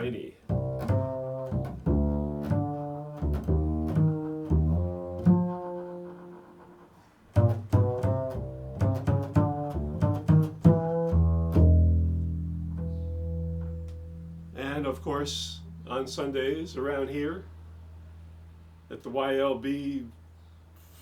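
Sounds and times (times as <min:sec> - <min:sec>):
plucked string instrument melody: 0:07.4 - 0:18.8.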